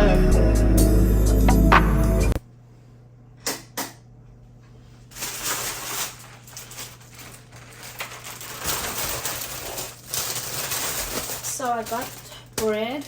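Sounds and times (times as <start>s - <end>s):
grocery bags rustling: 4.8s - 13.0s.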